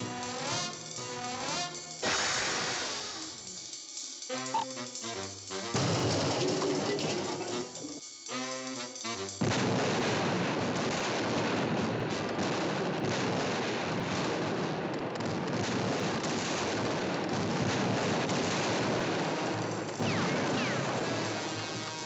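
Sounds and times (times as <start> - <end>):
dense cartoon noise: 4.3 - 8.8.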